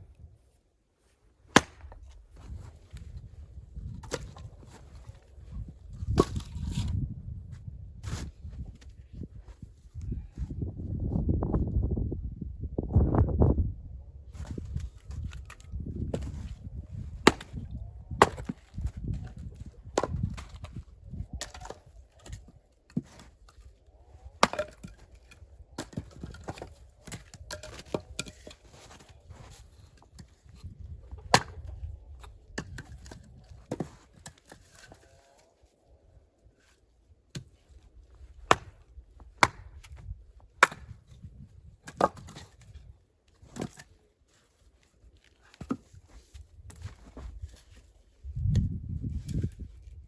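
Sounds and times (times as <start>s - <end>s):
axe chopping firewood: 1.5s - 2.6s, 4.0s - 4.4s, 17.1s - 23.4s, 24.2s - 35.0s, 38.4s - 41.2s, 41.8s - 42.7s.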